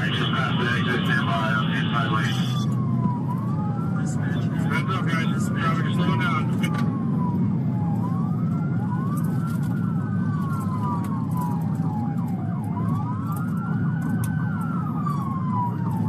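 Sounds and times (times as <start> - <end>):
steady low rumble: 0.0 - 8.4
police sirens wailing: 0.0 - 16.0.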